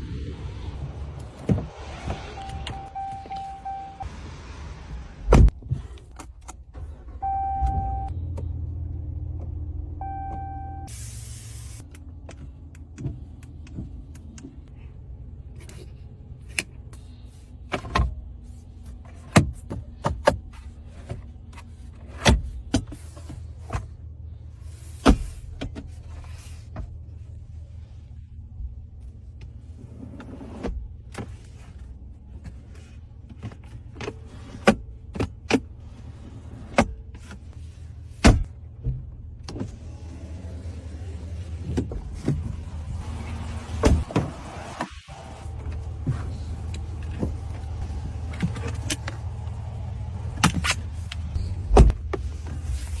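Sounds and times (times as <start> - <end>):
low hum inside vehicle cab: 0.0 - 53.0.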